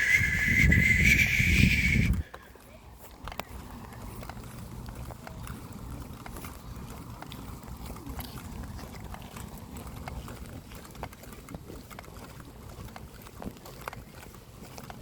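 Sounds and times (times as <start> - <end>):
low microphone rumble: 0.0 - 2.2
footsteps on a path: 0.0 - 15.0.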